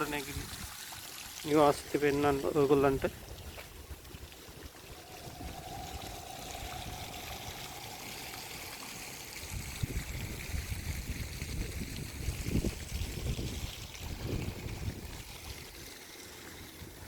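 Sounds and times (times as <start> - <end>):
running water trickling: 0.0 - 17.0
low rumbles: 4.4 - 10.9.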